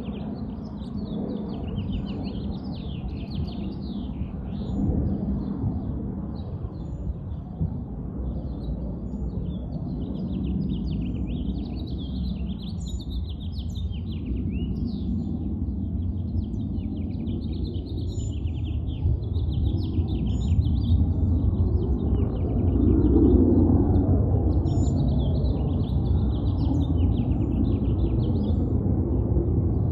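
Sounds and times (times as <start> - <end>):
small birds chirping: 6.3 - 29.9.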